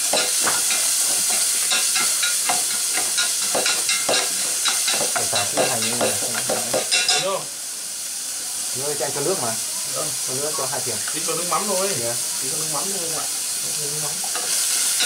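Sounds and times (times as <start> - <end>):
food sizzling in a pot: 0.0 - 15.0.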